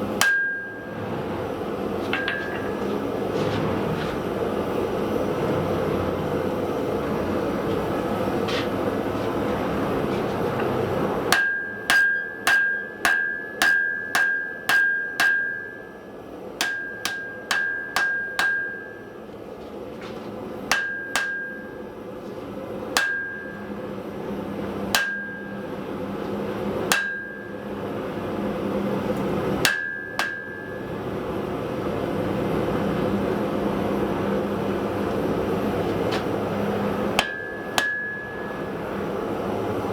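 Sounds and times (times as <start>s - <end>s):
gas forge roaring: 0.0s - 39.9s
hammer striking metal on anvil: 0.1s - 1.0s, 2.1s - 2.9s, 11.3s - 19.3s, 20.7s - 21.9s, 22.9s - 24.0s, 24.9s - 26.0s, 26.8s - 28.0s, 29.6s - 31.1s, 37.1s - 39.0s.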